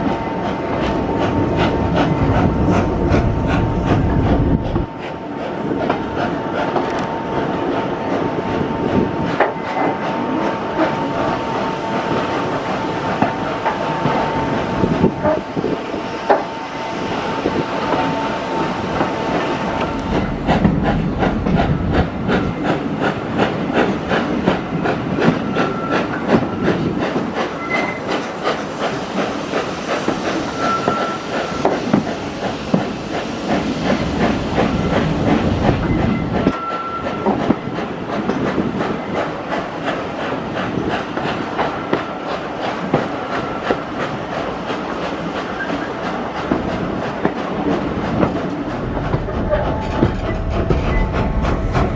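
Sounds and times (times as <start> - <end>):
train wheels clattering over rail joints: 17.2 - 51.9.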